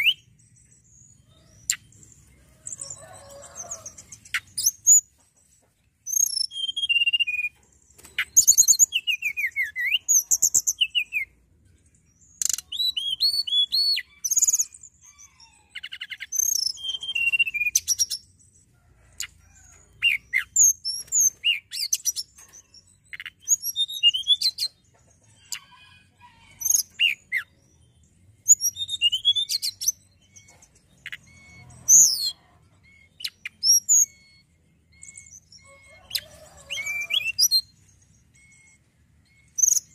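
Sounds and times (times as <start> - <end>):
bird singing whistled trills: 0.0 - 2.0, 6.0 - 11.4, 12.3 - 18.4, 20.0 - 24.8, 26.6 - 39.9.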